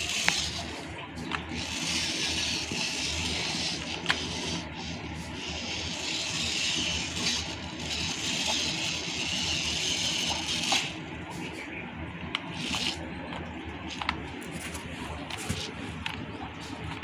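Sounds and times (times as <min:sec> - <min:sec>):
small electric motor running: 0:00.0 - 0:00.8, 0:01.4 - 0:11.1, 0:12.5 - 0:13.1.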